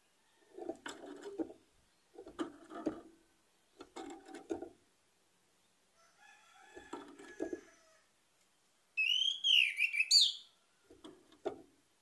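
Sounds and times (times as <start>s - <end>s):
bird calling: 9.0s - 10.5s.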